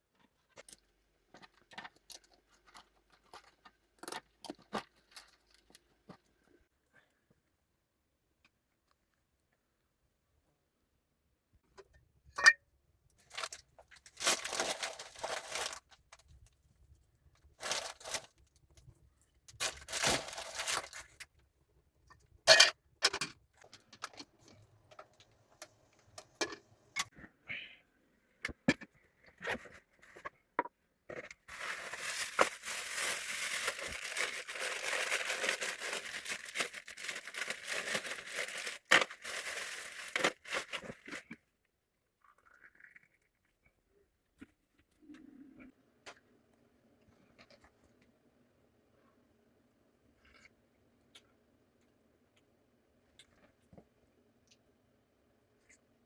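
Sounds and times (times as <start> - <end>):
crackly rustling: 13.2 - 21.4, 31.2 - 41.3
scraping or tearing: 13.3 - 15.9, 17.6 - 18.3, 31.5 - 41.2.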